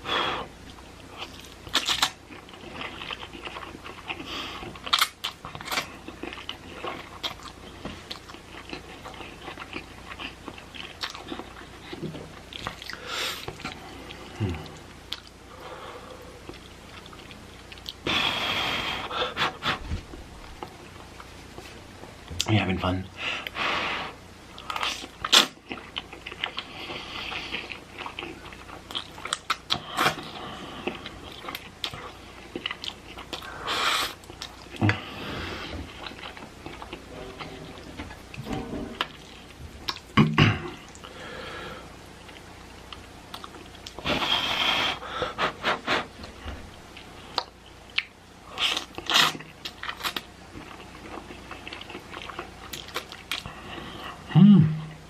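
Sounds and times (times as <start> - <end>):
chewing noodles: 0.7 - 15.3, 24.5 - 35.1, 46.9 - 54.2.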